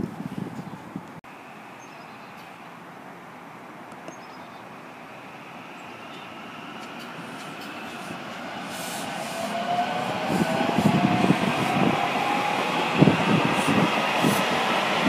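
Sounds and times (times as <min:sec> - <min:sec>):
wind buffeting microphone: 0:00.0 - 0:01.2, 0:06.9 - 0:15.0
electric train rumble: 0:04.9 - 0:15.0
train whine rising in pitch: 0:05.0 - 0:15.0.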